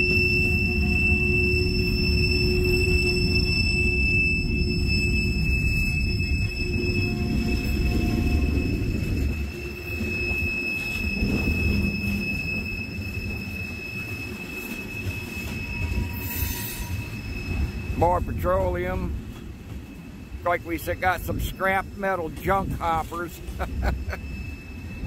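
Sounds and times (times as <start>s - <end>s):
high-pitched squeal: 0.0s - 19.2s, 19.9s - 25.0s
train wheels rumbling on rails: 0.0s - 25.0s.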